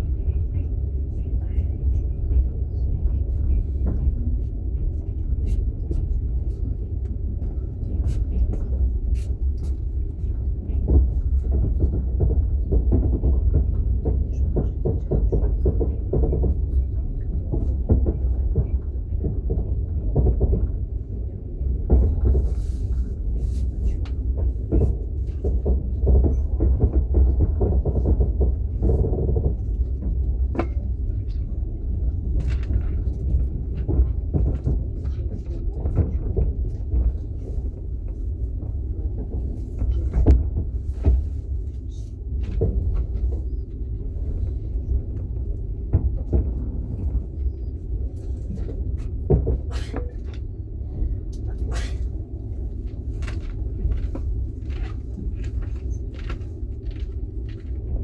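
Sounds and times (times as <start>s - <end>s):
train wheels rumbling: 0.0s - 58.0s
rattles and knocks: 32.2s - 41.8s, 51.4s - 58.0s.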